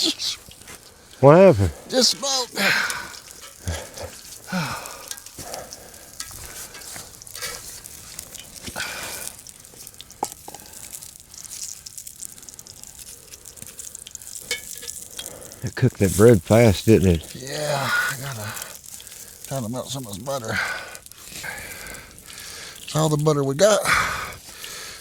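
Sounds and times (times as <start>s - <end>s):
bread sizzling on hot surface: 0.0s - 25.0s
small clicks and knocks: 5.0s - 15.4s.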